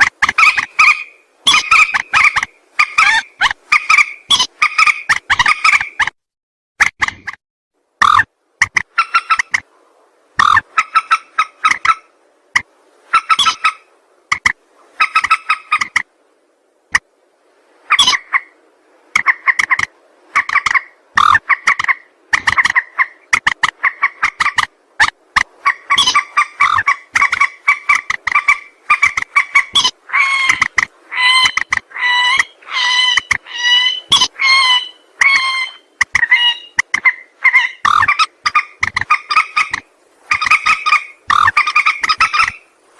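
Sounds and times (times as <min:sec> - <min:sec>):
rail bird clucking calls: 0:00.0 - 0:06.1, 0:08.0 - 0:09.7, 0:10.4 - 0:16.1, 0:17.9 - 0:42.9.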